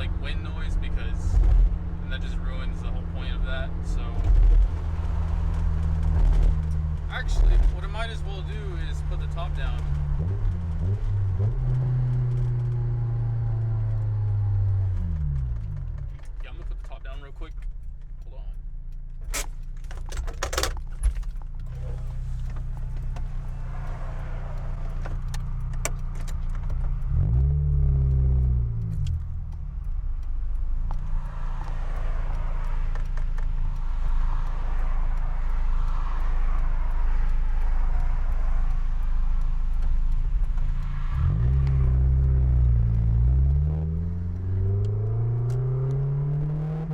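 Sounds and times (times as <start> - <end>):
car engine revving: 0.0 - 46.9
wind and road noise: 0.0 - 46.9
sharp clicks: 0.9 - 46.9.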